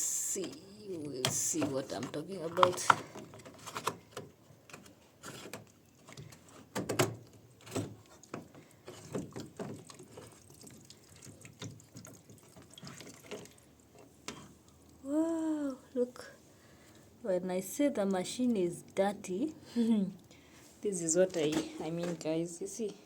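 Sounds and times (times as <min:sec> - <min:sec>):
plastic clicks and knocks: 0:01.2 - 0:09.9
water dripping: 0:07.2 - 0:15.6.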